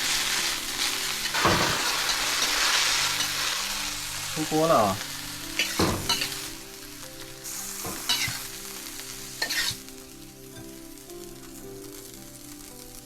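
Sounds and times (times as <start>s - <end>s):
spatula scraping a wok: 0.0s - 9.9s
food sizzling in a wok: 0.0s - 13.0s.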